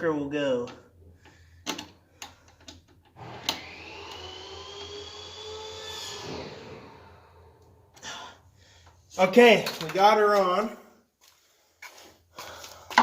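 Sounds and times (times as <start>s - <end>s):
small motor whirring: 3.2s - 7.6s.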